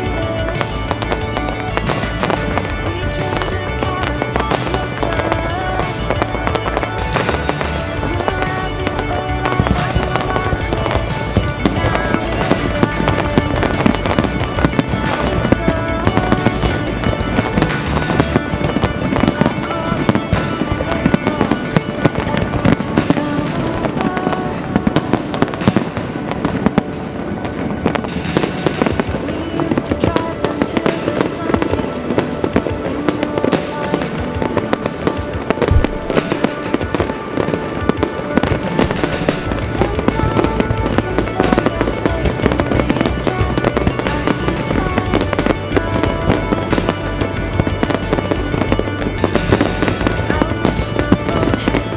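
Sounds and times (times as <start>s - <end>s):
fireworks bangs and crackles: 0.0s - 51.9s
music playing: 0.0s - 51.9s.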